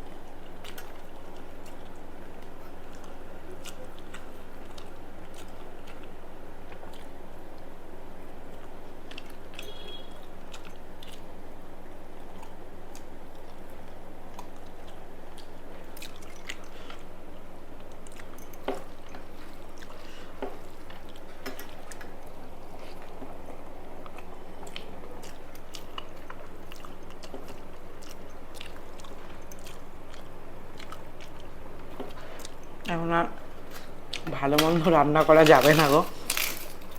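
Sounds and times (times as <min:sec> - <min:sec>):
chewing food: 0:00.0 - 0:36.9
low background hum: 0:00.0 - 0:36.9.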